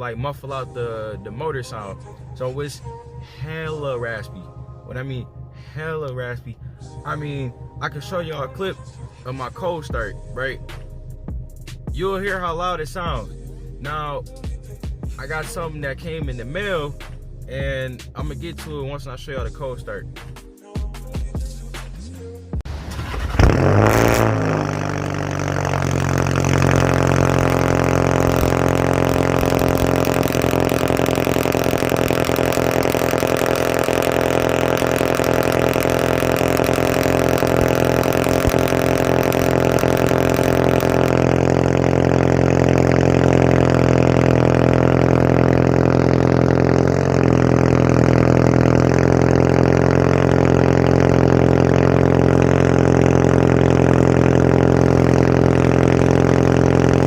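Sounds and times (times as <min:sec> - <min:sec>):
raspy car exhaust idling: 0:22.7 - 0:57.0.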